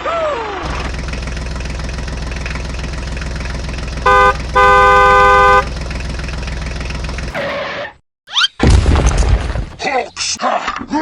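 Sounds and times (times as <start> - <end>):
tractor engine running: 0.4 - 7.4
tractor horn honking: 3.9 - 5.9.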